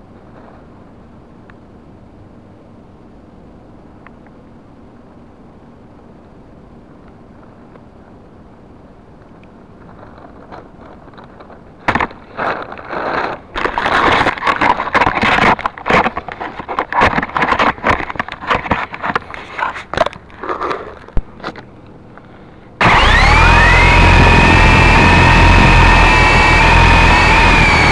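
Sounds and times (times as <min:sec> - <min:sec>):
scraping and crackling noises: 0:09.2 - 0:23.0
toy helicopter motor whine: 0:22.8 - 0:27.9.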